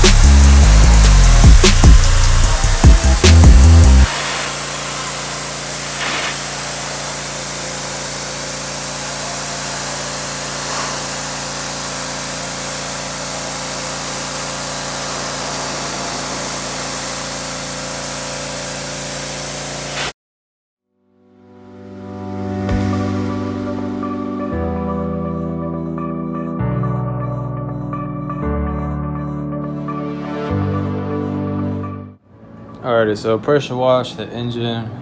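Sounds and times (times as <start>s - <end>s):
pressure washer motor hum: 0.0s - 20.1s
pressure washer spray hiss: 0.0s - 20.2s.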